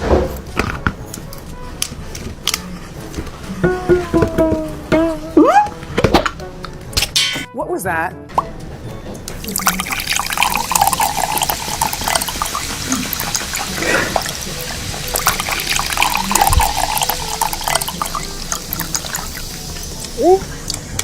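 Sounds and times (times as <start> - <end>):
liquid splashing and trickling: 9.4 - 21.0.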